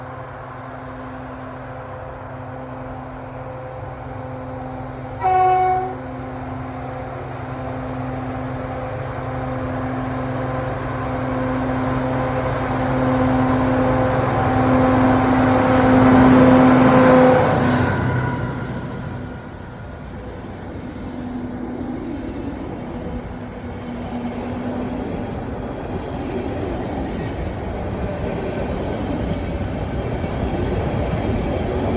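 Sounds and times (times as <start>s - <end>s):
diesel locomotive engine drone: 0.0s - 31.9s
locomotive horn blast: 5.2s - 6.2s.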